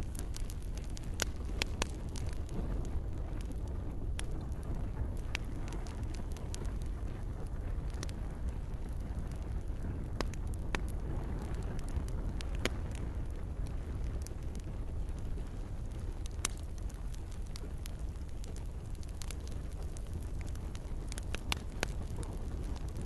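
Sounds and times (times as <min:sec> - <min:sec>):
soft rain hiss: 0:00.0 - 0:03.4
campfire crackling and popping: 0:00.0 - 0:23.0
low rumble of burning: 0:00.0 - 0:23.0.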